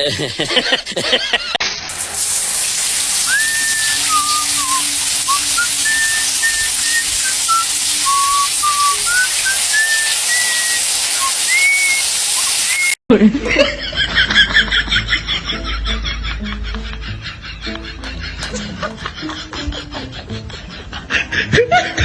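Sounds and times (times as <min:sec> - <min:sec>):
high-pitched hiss: 0:01.9 - 0:13.0
person whistling a tune: 0:03.2 - 0:13.0.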